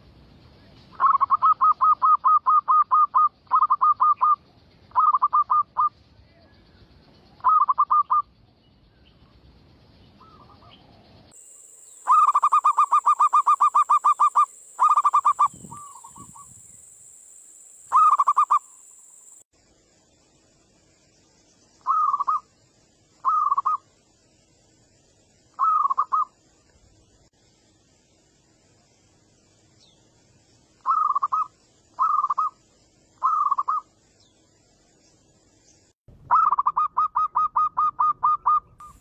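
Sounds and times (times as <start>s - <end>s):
dove cooing: 1.0s - 5.9s, 7.4s - 8.2s, 12.1s - 16.6s, 17.9s - 18.6s, 21.9s - 22.4s, 23.2s - 23.8s, 25.6s - 26.3s, 33.2s - 33.8s, 36.3s - 39.0s.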